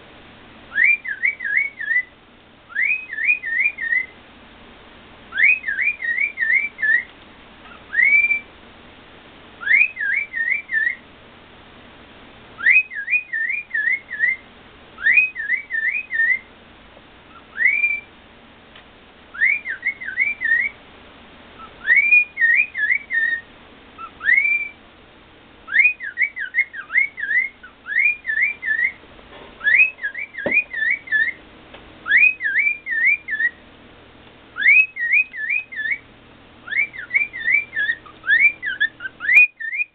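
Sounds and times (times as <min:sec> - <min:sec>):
cockatiel whistling: 0:00.7 - 0:02.1, 0:02.7 - 0:04.2, 0:05.3 - 0:07.1, 0:07.7 - 0:08.5, 0:09.6 - 0:11.0, 0:12.6 - 0:14.4, 0:15.0 - 0:16.5, 0:17.3 - 0:18.1, 0:19.3 - 0:20.8, 0:21.6 - 0:24.8, 0:25.7 - 0:29.0, 0:29.6 - 0:31.4, 0:32.0 - 0:33.6, 0:34.6 - 0:39.9.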